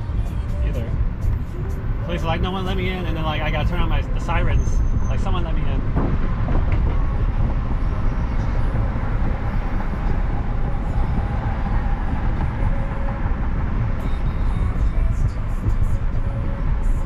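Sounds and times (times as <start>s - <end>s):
road and tyre noise: 0.0s - 17.0s.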